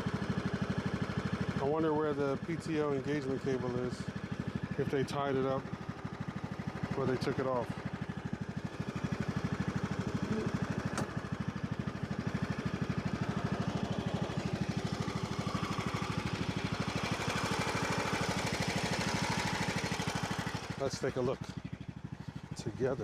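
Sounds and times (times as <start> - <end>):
riding mower engine running: 0.0 - 23.0.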